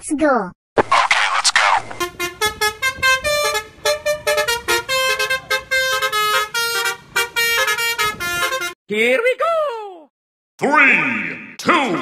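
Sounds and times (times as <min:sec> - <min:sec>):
horn playing a quick tune: 0:02.0 - 0:08.8.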